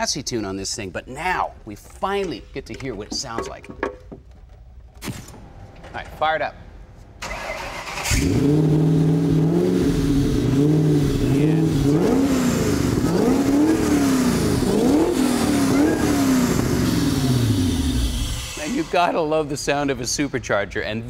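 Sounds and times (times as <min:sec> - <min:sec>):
car engine revving: 0:07.2 - 0:18.6.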